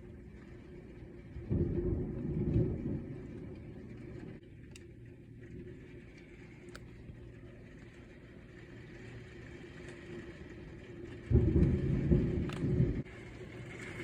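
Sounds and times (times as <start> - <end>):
thunder rumbling: 0.1 - 4.4, 10.6 - 14.0.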